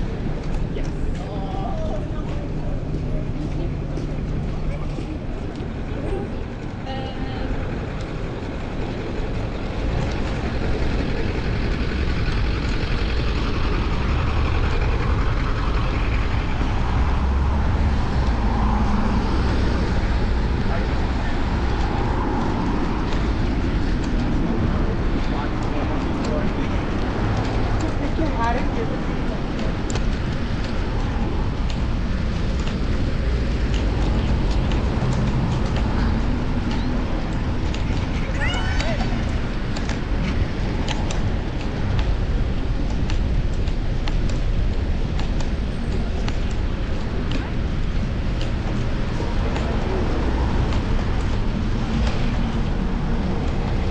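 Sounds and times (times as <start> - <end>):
city traffic rumble: 0.0 - 53.9
wind and road noise: 0.0 - 53.9.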